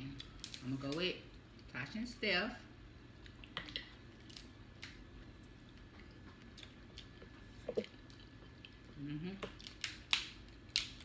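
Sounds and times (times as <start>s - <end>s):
low steady hum: 0.0s - 11.0s
people chewing: 3.2s - 11.0s.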